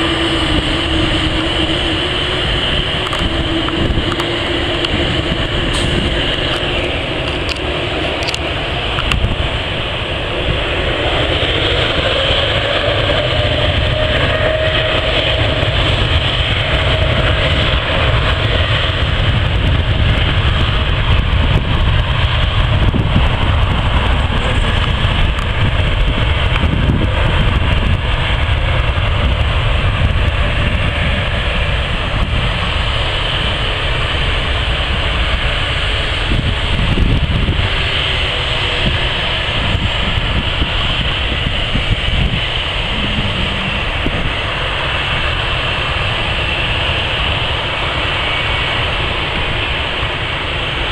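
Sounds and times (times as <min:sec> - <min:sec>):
jet engines roaring: 0:00.0 - 0:50.9
faint rising whine: 0:42.1 - 0:45.4.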